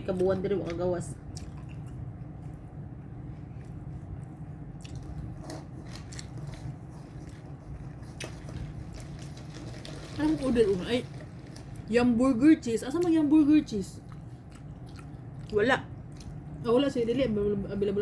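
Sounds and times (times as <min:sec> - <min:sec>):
steady low hum: 0:00.0 - 0:18.0
chewing and biting food: 0:00.1 - 0:02.8, 0:03.4 - 0:10.2, 0:14.0 - 0:16.5.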